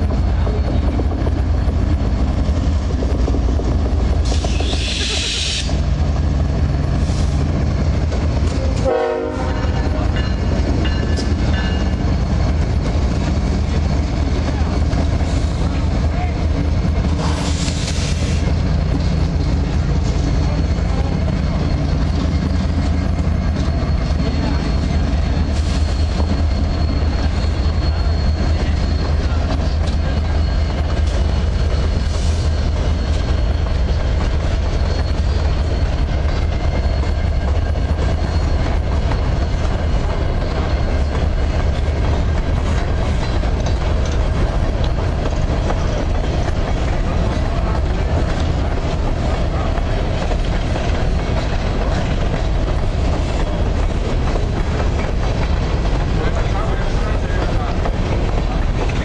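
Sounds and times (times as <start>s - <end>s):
freight train rumbling past: 0.0s - 59.0s
wheel squeal: 19.7s - 41.8s.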